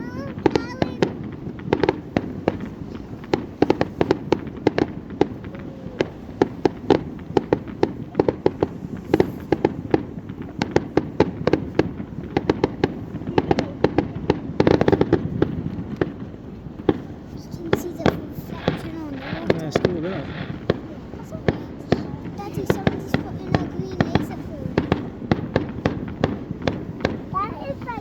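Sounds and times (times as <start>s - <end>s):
continuous rumble: 0.0s - 28.0s
fireworks cracking and banging: 0.0s - 28.0s.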